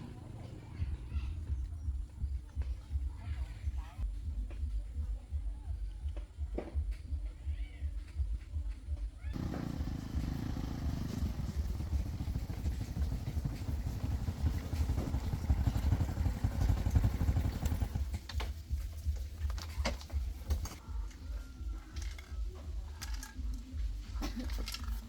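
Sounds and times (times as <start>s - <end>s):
vehicle engine rumbling: 0.0s - 4.1s, 9.3s - 21.0s.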